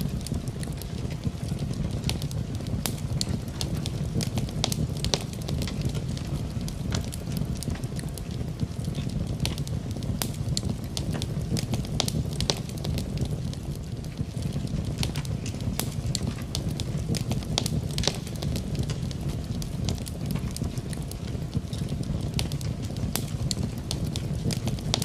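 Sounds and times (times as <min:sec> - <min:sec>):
rain: 0:00.0 - 0:25.0
wood fire crackling: 0:00.0 - 0:25.0.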